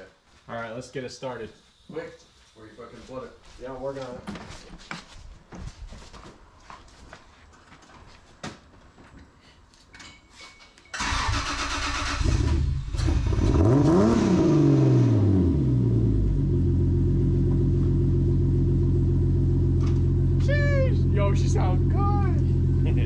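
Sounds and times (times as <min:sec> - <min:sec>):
engine starter cranking: 0:11.0 - 0:13.5
engine revving and idling: 0:11.4 - 0:23.0.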